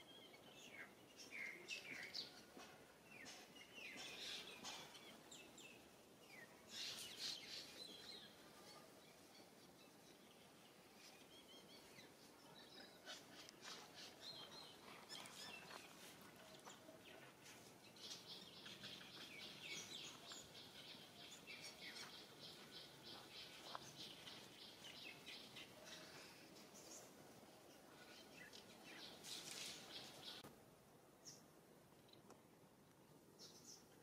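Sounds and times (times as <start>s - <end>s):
small birds chirping: 0.0s - 30.5s, 31.1s - 34.0s.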